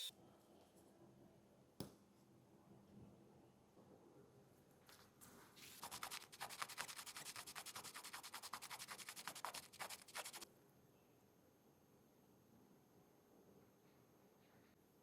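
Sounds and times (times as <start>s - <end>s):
rapid rubbing strokes: 5.6s - 10.4s.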